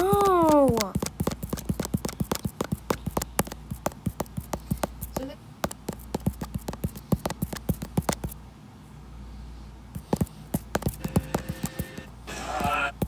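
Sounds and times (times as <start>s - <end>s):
sharp clicks or taps: 0.0s - 8.4s.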